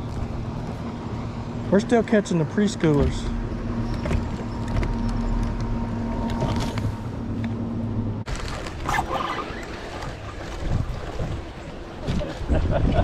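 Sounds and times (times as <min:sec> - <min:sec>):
wind noise: 0:10.3 - 0:13.0.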